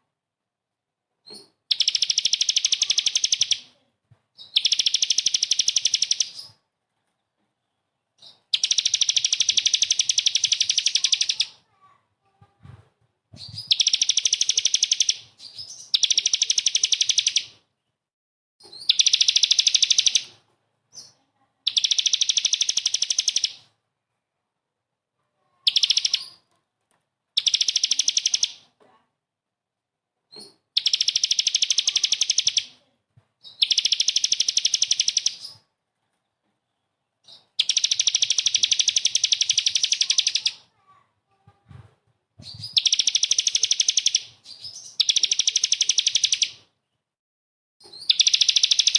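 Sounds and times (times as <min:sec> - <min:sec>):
songbird harsh trill bursts: 0:08.6 - 0:11.6, 0:21.7 - 0:23.6, 0:25.7 - 0:26.4, 0:30.8 - 0:32.8, 0:37.4 - 0:40.7, 0:42.7 - 0:46.6, 0:48.0 - 0:48.9.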